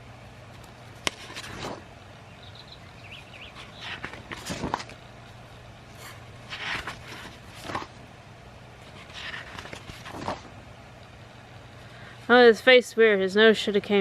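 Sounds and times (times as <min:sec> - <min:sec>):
faint low hum: 0:00.0 - 0:14.0
paper rustling: 0:00.6 - 0:01.8, 0:03.5 - 0:05.0, 0:05.9 - 0:08.0, 0:08.8 - 0:10.6.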